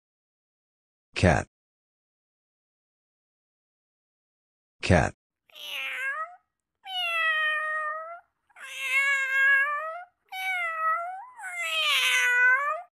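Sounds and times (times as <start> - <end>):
cat meowing: 5.5 - 12.9.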